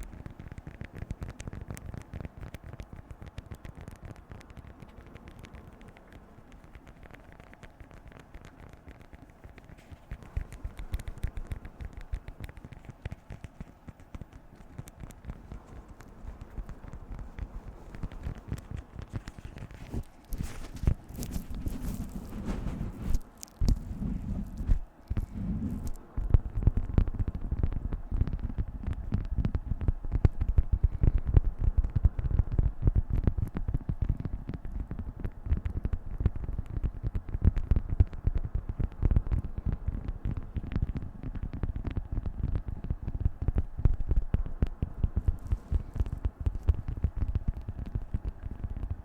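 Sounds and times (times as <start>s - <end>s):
wax wrap crinkling: 0.0s - 49.0s.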